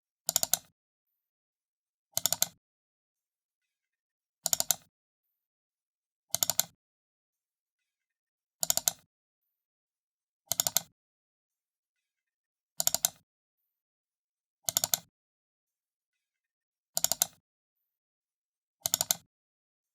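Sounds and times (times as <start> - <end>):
computer mouse double-clicks: 0.3 - 0.7, 2.2 - 2.6, 4.4 - 4.9, 6.3 - 6.8, 8.6 - 9.1, 10.5 - 10.9, 12.8 - 13.2, 14.7 - 15.1, 17.0 - 17.4, 18.8 - 19.3.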